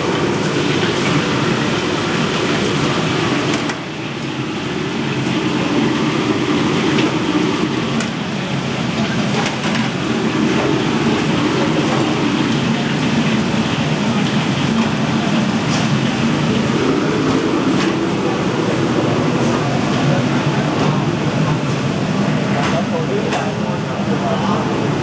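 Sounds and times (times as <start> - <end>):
street food stall din: 0.0 - 25.0
voices: 8.0 - 25.0.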